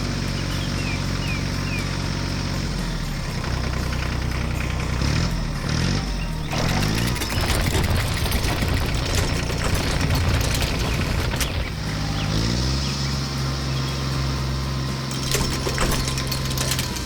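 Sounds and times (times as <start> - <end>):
cartoon machine engine running: 3.4 - 12.8, 15.1 - 17.0.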